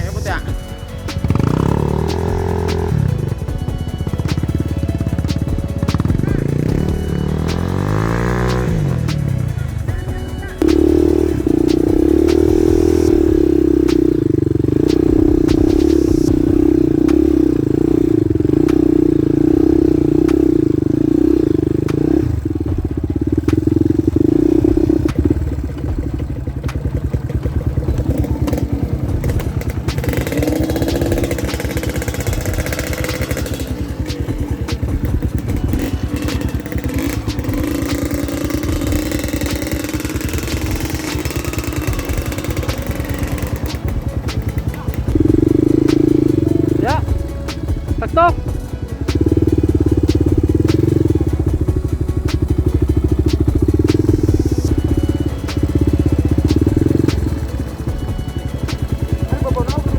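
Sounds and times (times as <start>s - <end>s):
motorcycle engine under load: 0.0s - 59.9s
knocks and clatter from bike: 24.7s - 46.0s.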